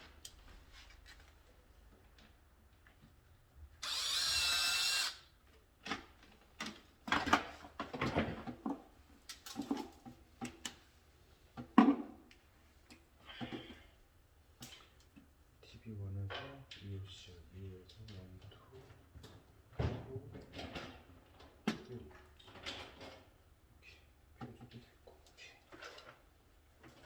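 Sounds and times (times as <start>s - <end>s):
power drill running: 3.8s - 5.3s.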